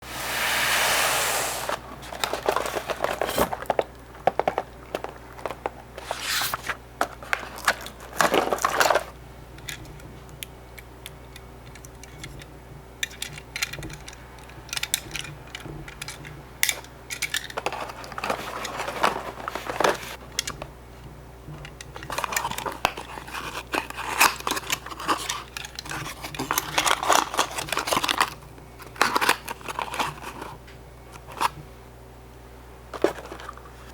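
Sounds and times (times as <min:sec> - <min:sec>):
loud hiss: 0:00.0 - 0:01.8
cardboard rustling: 0:00.0 - 0:09.1, 0:17.6 - 0:20.2.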